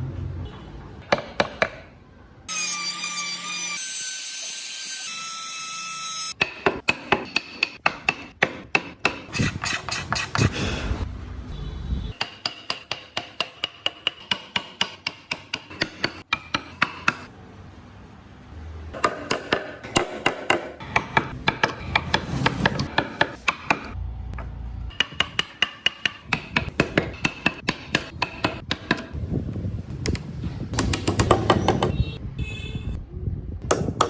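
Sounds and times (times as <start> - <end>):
mallet tapping wood chisel: 6.4 - 10.5, 12.2 - 17.3, 19.0 - 24.0, 24.9 - 29.1.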